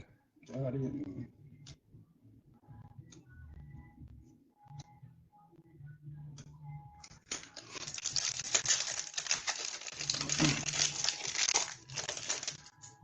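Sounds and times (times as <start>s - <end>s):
foil wrapper crinkling: 7.3s - 12.8s.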